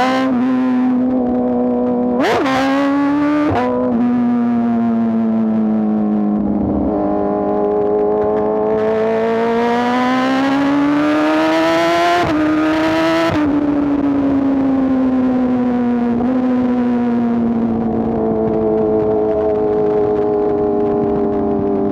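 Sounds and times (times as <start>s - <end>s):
motorcycle engine accelerating: 0.0s - 21.9s.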